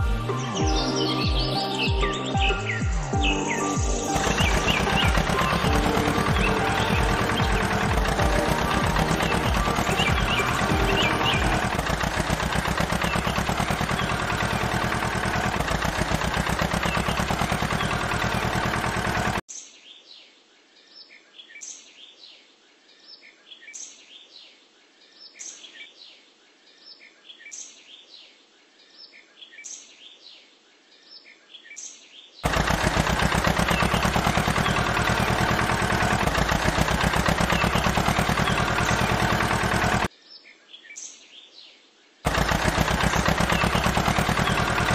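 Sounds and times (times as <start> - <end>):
birds chirping: 0.0 - 19.4, 31.1 - 41.1, 42.3 - 44.9
fast mechanical rattle: 4.0 - 19.5, 32.4 - 40.1, 42.3 - 44.9.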